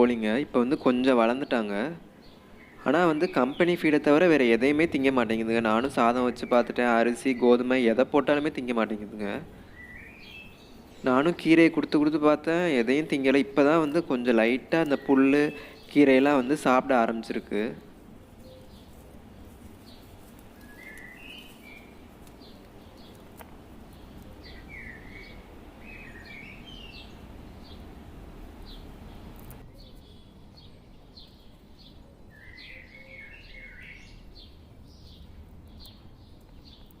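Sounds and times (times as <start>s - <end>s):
birds chirping: 0.0s - 37.0s
steady low background noise: 0.0s - 37.0s.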